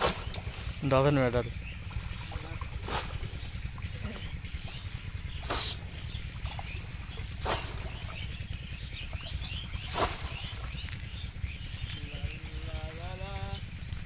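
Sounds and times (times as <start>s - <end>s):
small birds chirping: 0.0s - 14.0s
short splash-like noises: 6.4s - 8.3s, 9.8s - 10.8s.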